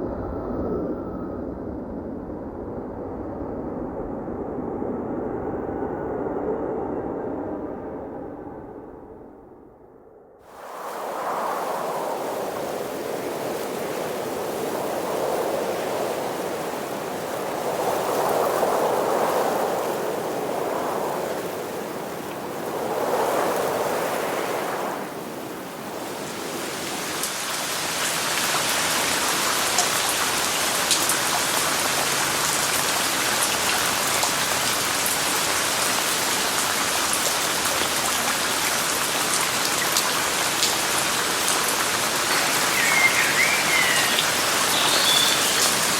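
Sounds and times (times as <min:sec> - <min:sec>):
steady rain: 0:10.5 - 0:20.8, 0:25.7 - 0:45.9.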